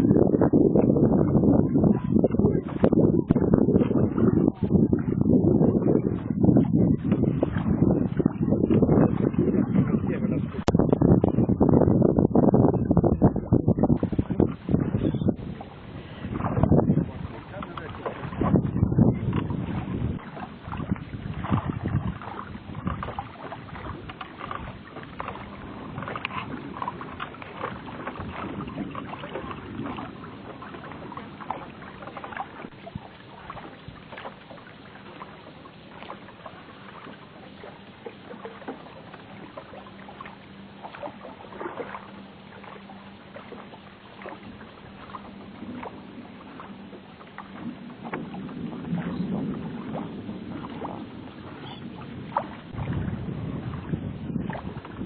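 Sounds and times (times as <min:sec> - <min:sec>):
water lapping against boat hull: 0:00.0 - 0:55.0.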